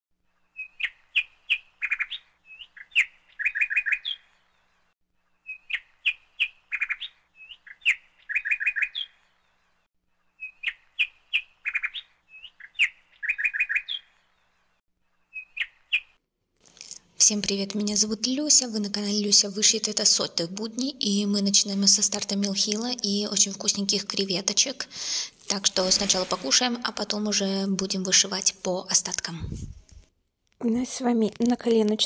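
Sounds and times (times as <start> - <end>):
small bird chirping and trilling: 0.5 - 4.7, 5.4 - 9.6, 10.2 - 14.6, 15.2 - 16.2.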